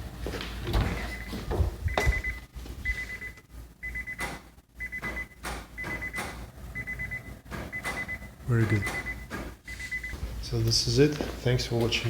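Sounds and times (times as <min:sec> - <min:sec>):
car warning chime beeping: 0:01.1 - 0:10.2.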